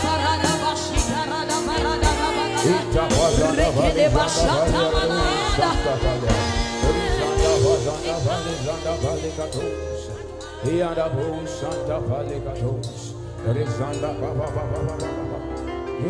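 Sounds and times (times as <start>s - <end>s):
voices singing: 0.0s - 15.7s
band playing: 0.0s - 16.0s.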